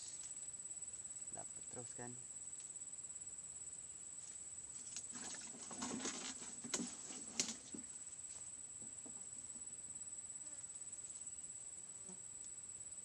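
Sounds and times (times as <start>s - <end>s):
rustling handling noise: 4.2s - 8.4s.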